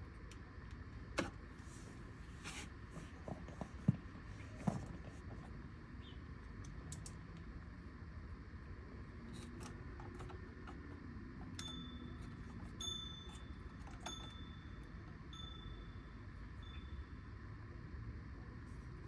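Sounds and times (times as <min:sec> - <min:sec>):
electronic chime dings: 0:11.6 - 0:17.0.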